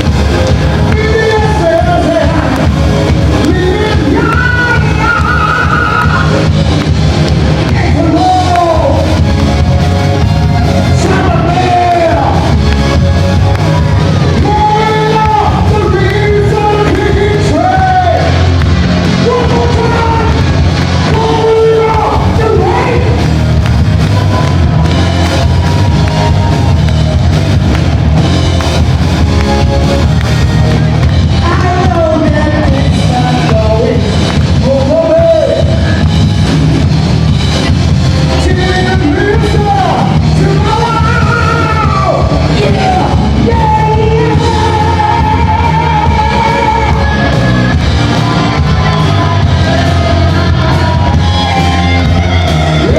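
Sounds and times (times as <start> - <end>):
live rock band playing: 0.0 - 52.9
person singing: 0.6 - 6.5, 31.3 - 36.0, 38.4 - 52.9.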